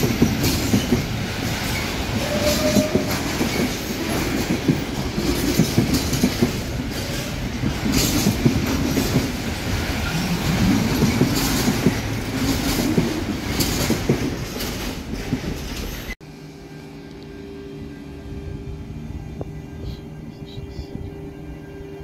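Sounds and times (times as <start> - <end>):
train wagons clattering over rail joints: 0.0 - 16.2
train rumble: 0.0 - 22.0.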